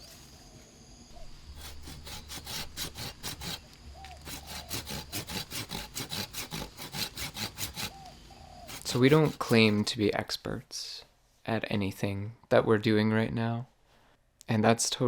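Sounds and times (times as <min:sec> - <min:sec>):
hand saw cutting bamboo: 0:01.5 - 0:10.0.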